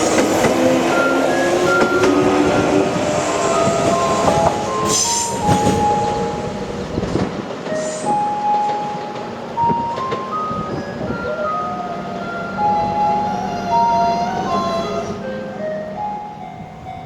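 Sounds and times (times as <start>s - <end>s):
train wheels clattering on rails: 0.0s - 13.0s.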